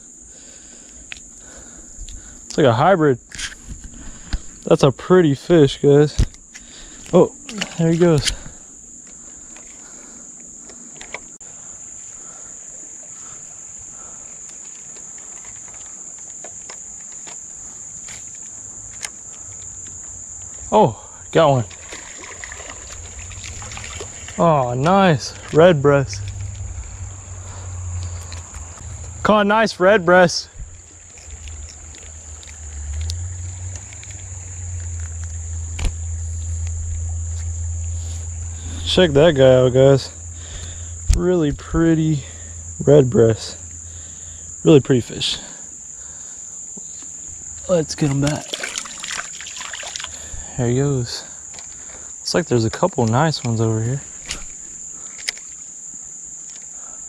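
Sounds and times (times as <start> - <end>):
crickets droning: 0.0 - 57.0
insects chirring: 0.0 - 57.0
small ticks and clicks: 14.4 - 20.7, 30.7 - 38.5, 54.2 - 56.8
low rumble on microphone: 22.5 - 44.7
faint clicks: 30.7 - 37.5.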